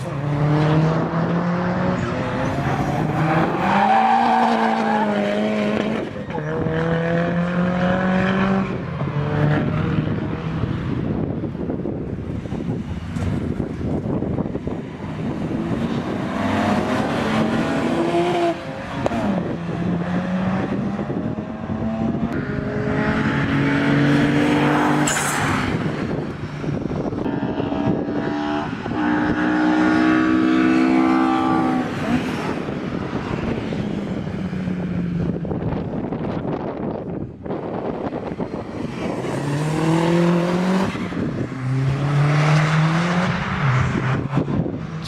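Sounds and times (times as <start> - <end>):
race car engines revving: 0.0 - 45.0.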